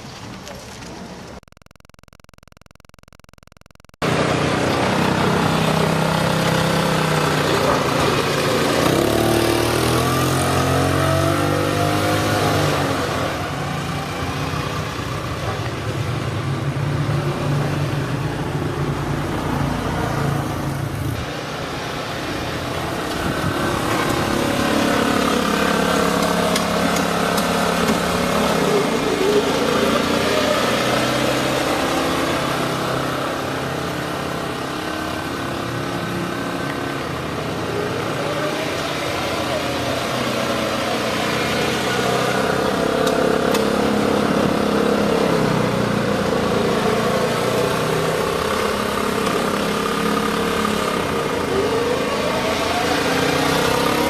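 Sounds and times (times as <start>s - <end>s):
vehicle engine revving: 4.0s - 13.4s.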